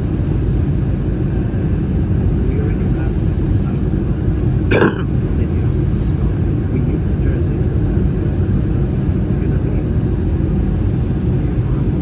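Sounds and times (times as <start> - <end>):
airplane cabin engine roar: 5.2 - 12.0.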